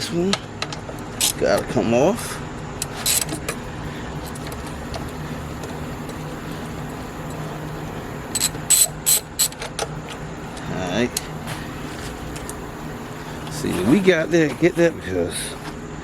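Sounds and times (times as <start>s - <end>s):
steady low hum: 0.0s - 16.0s
hand ratchet clicking: 0.7s - 1.6s, 2.8s - 11.4s.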